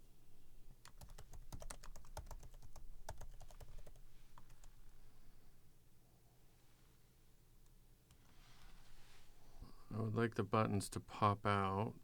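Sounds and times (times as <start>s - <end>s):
computer keyboard typing: 0.8s - 4.6s.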